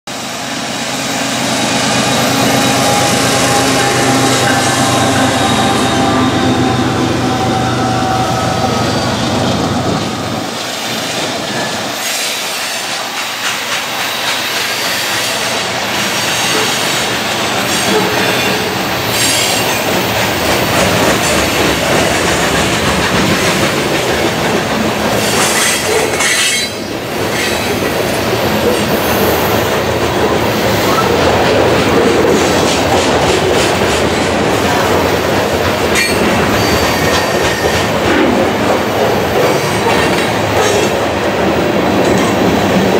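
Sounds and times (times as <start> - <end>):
diesel locomotive engine drone: 0.1 - 42.9
train wheels rolling: 0.1 - 42.9
wheels clacking over rail joints: 10.9 - 42.9.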